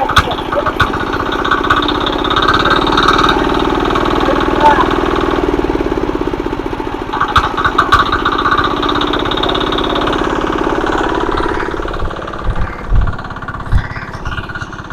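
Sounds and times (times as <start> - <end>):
sharp clicks: 0.0 - 5.4, 7.1 - 14.9
power tiller engine running: 0.0 - 14.9
low thumps: 7.0 - 14.9.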